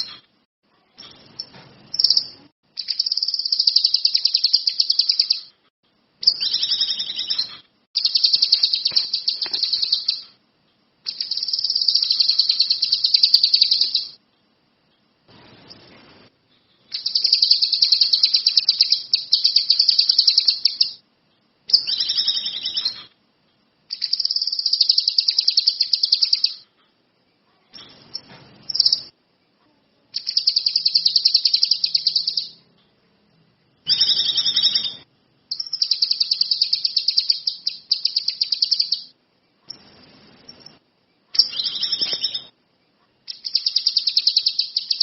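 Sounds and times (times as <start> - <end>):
songbird trilling: 2.0 - 5.5, 6.2 - 10.3, 11.1 - 14.2, 17.0 - 21.0, 23.9 - 26.6, 30.2 - 32.6, 33.9 - 39.1, 41.4 - 42.5, 43.3 - 45.0.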